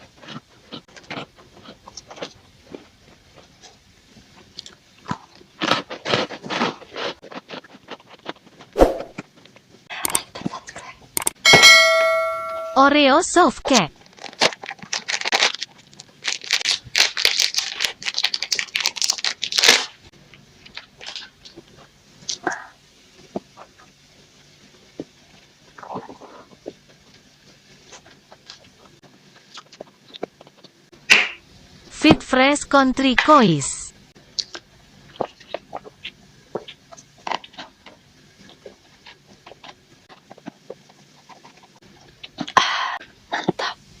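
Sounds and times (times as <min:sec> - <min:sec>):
wet mouth eating sounds: 0:00.0 - 0:09.2, 0:25.3 - 0:26.9, 0:34.3 - 0:43.8
plastic wrapper crinkling: 0:14.0 - 0:21.6.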